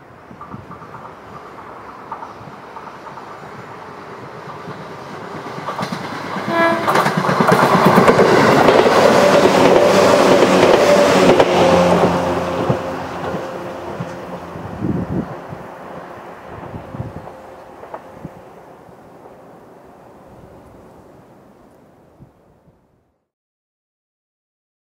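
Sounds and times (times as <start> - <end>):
large vehicle passing: 6.4 - 21.1.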